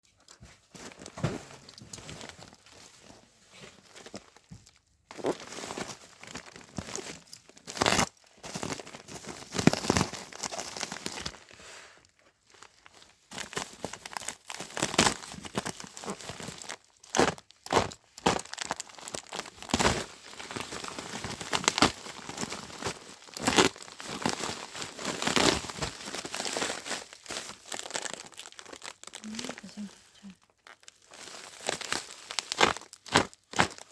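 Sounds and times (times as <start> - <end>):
packaging crinkling and rustling: 0.2 - 33.9
packaging tearing: 13.4 - 29.8, 30.6 - 33.9.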